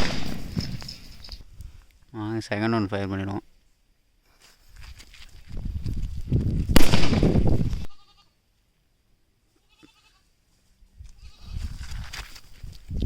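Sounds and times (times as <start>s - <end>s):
firecracker bang: 0.0s - 1.1s, 6.7s - 7.7s.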